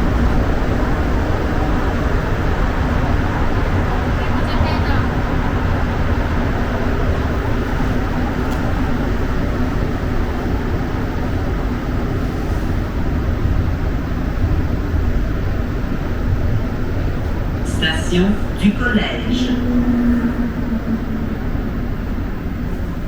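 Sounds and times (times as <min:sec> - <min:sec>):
subway train rumble: 0:00.0 - 0:23.0
faint hum: 0:15.0 - 0:23.0.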